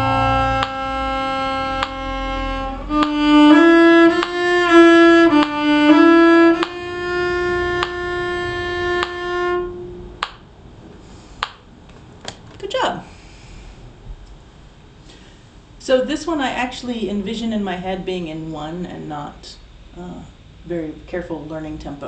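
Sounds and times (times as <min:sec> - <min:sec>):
violin bowing: 0:00.0 - 0:10.4.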